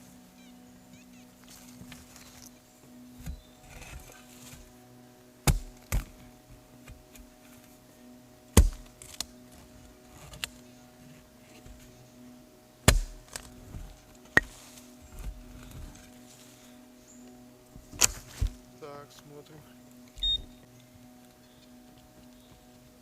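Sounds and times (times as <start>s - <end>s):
shovel striking ground: 8.6s - 8.9s, 12.9s - 13.4s, 14.4s - 14.6s.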